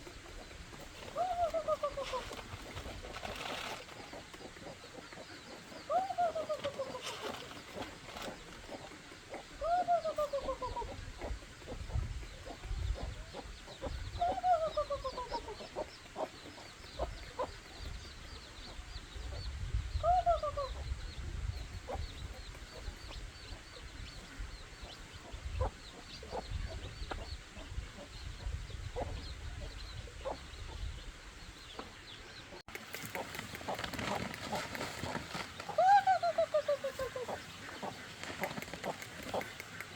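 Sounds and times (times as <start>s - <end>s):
hen calling: 1.0s - 11.4s, 12.4s - 16.3s, 33.1s - 39.9s.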